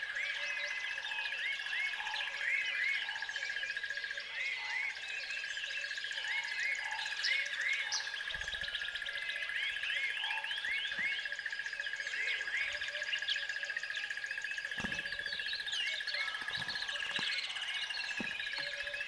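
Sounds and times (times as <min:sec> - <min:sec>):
birds chirping: 0:00.0 - 0:19.0
rising and falling bird calls: 0:04.9 - 0:19.0.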